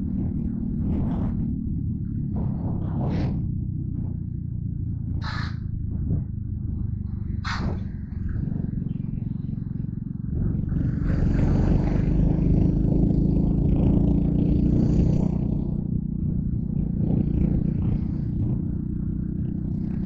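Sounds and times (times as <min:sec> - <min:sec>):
motorcycle engine running: 0:00.0 - 0:20.0
road noise: 0:00.0 - 0:20.0
wind: 0:00.0 - 0:20.0
brief sharp sound: 0:07.5 - 0:07.8.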